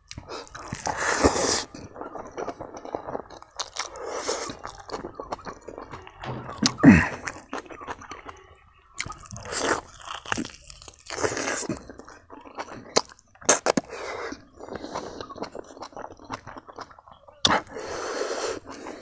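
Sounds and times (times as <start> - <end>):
person chewing food: 0.0 - 5.6, 9.0 - 17.7.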